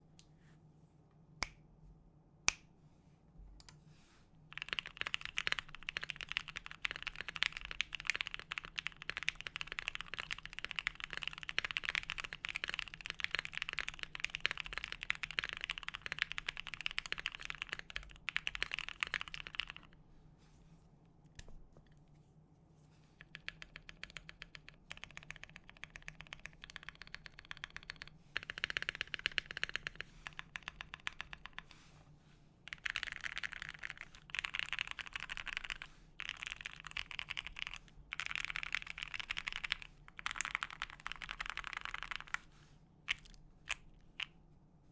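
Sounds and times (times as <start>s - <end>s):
mechanical keyboard typing: 4.5s - 19.9s, 23.2s - 31.7s, 32.7s - 42.4s.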